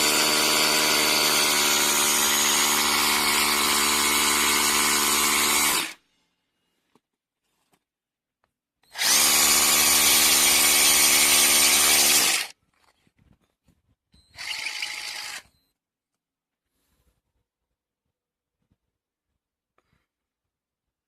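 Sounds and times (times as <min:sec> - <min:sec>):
cordless rotary hammer running: 0:00.0 - 0:06.0, 0:08.9 - 0:12.5, 0:14.4 - 0:15.5.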